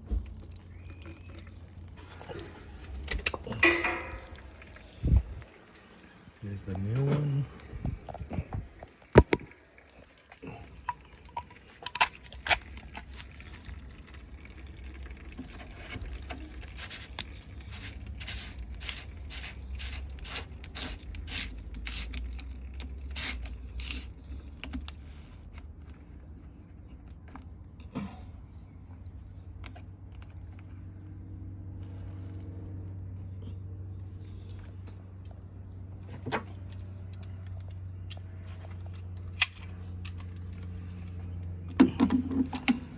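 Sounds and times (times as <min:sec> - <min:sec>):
clicks and scrapes on valve fitting: 0:15.5 - 0:26.0.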